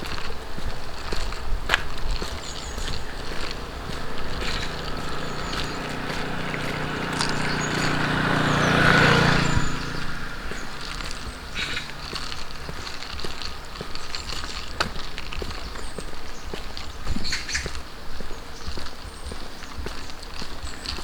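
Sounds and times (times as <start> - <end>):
light footsteps: 0.0 - 21.0
vehicle engine passing by: 1.9 - 15.1.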